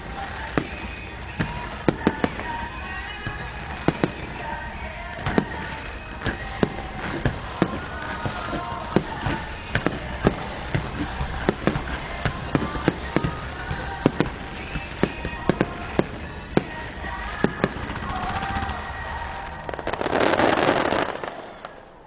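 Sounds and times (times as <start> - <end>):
music playing: 0.0 - 21.5
fireworks bangs: 0.0 - 22.0.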